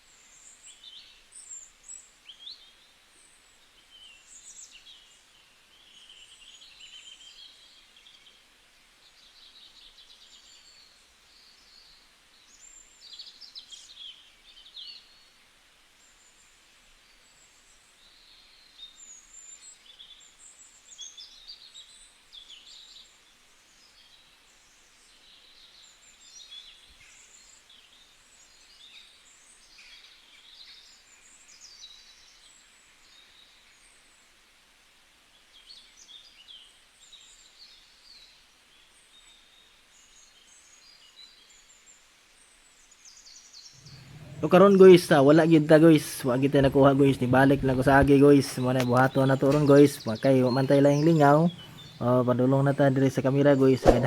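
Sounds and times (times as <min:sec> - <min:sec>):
faint background hiss: 0:00.0 - 0:54.0
small birds chirping: 0:43.0 - 0:54.0.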